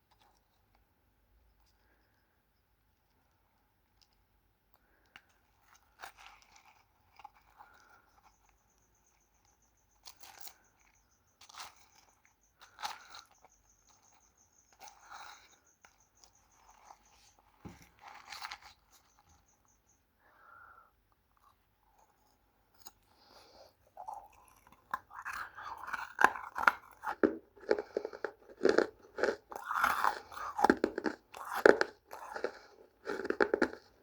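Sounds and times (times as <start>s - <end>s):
dry clay crunching and cracking: 21.4s - 34.0s.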